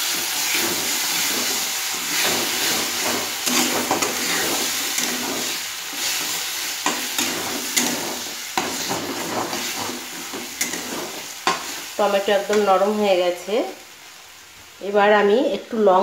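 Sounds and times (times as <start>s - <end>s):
metal spatula scraping pan: 0.0s - 12.8s
tomato sizzling in hot oil: 0.0s - 16.0s.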